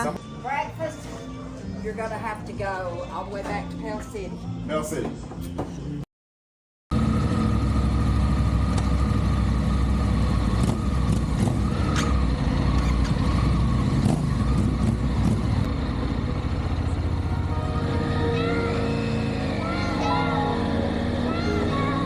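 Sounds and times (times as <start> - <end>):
motorcycle engine drone: 6.9 - 22.0
road and wind rumble: 6.9 - 22.0.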